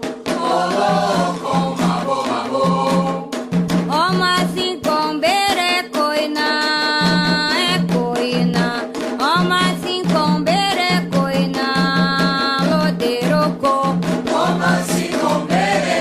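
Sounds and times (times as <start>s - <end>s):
hand drums: 0.0s - 16.0s
voices singing: 0.3s - 3.4s, 14.3s - 16.0s.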